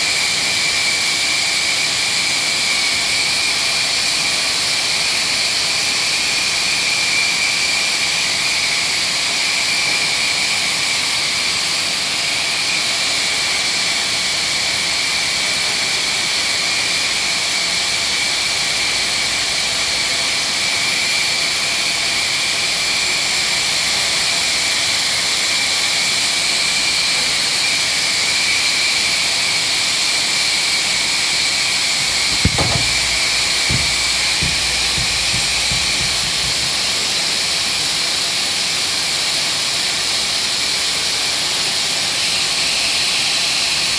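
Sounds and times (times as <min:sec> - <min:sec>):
brief knock: 0:32.0 - 0:37.1.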